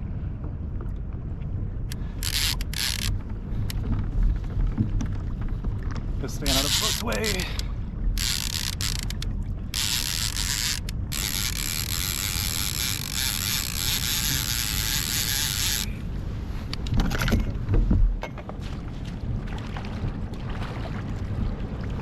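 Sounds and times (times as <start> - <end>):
fishing reel ratcheting clicks: 1.9 - 3.8, 6.4 - 16.0.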